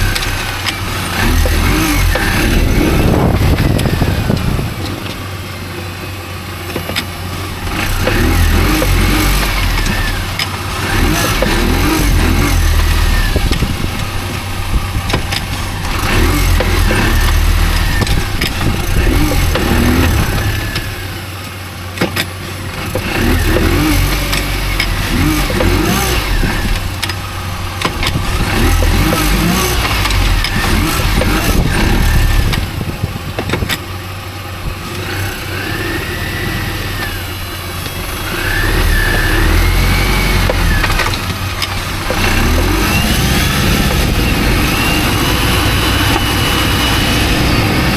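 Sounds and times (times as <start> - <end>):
car engine and road rumble: 0.0 - 47.9
whine changing pitch: 41.9 - 47.9.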